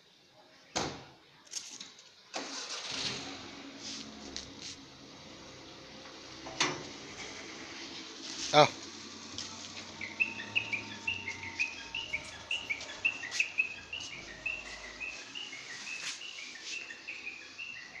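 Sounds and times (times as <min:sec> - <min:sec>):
bird chirping: 0:09.4 - 0:18.0.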